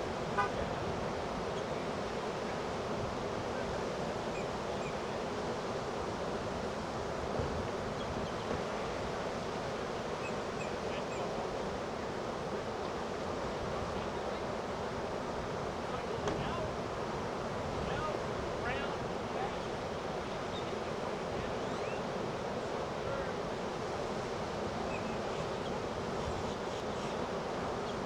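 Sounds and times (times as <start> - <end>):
ocean surf breaking: 13.3 - 26.1.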